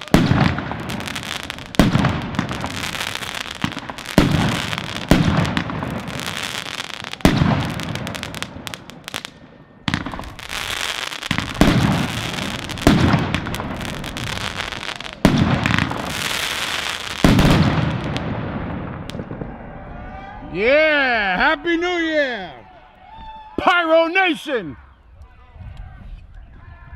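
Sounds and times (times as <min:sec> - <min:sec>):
fireworks crackling hiss: 0:00.0 - 0:09.4, 0:10.0 - 0:18.1
fireworks bangs: 0:00.0 - 0:22.1.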